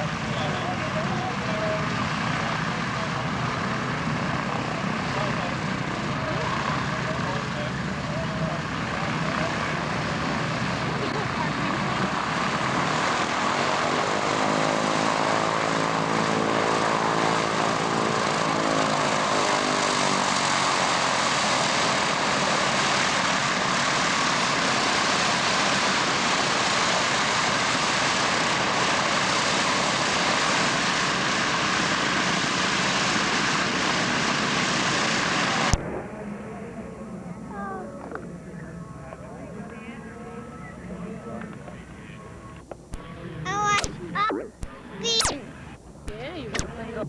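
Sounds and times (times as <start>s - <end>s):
click: 42.7s - 47.0s.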